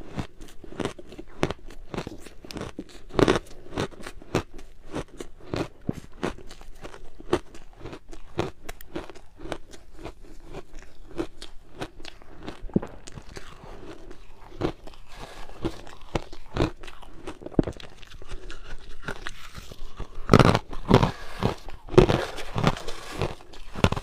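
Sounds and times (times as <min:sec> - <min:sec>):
ice being chewed: 0:00.0 - 0:24.0.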